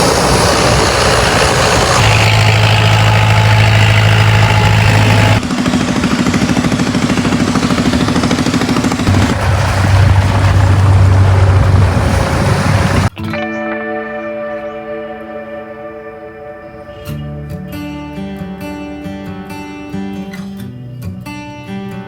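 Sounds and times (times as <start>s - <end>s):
loud engine running: 0.0s - 13.1s.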